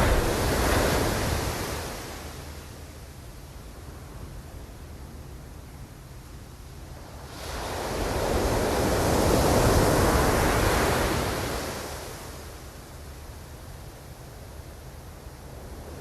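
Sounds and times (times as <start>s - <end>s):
ocean wave rushing in: 0.0s - 2.4s.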